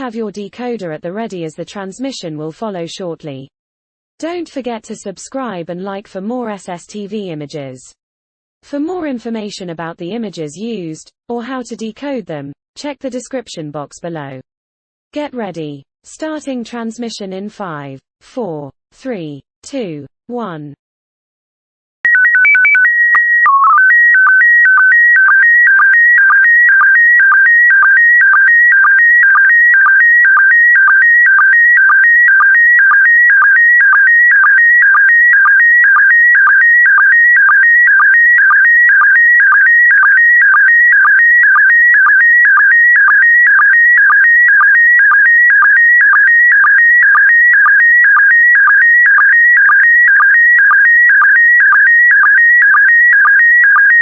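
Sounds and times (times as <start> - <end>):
warbling sstv signal tone: 22.1 - 54.0.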